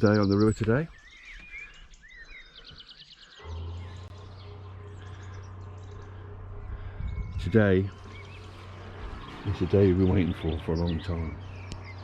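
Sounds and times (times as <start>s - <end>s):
birds chirping and trilling: 0.0s - 12.0s
low mechanical hum: 3.4s - 12.0s.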